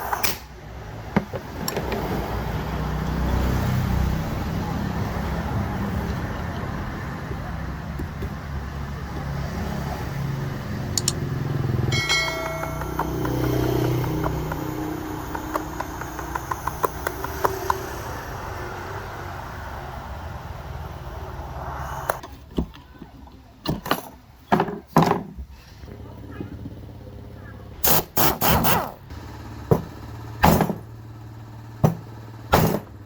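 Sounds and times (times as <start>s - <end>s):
traffic hum: 0.0s - 33.0s
metal clinks on drill housing: 11.9s - 14.5s
ringing metallic strike: 11.9s - 16.1s
sharp knocks: 11.9s - 17.8s.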